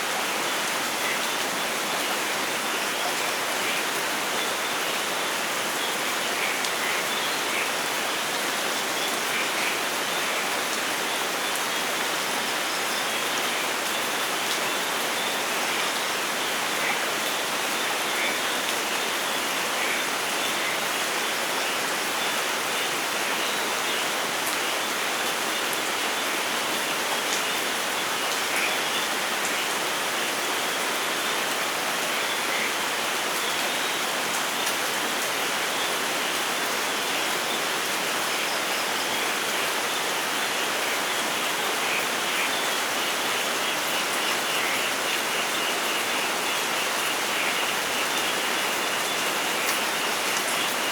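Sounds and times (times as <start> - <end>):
steady rain hiss: 0.0 - 50.9.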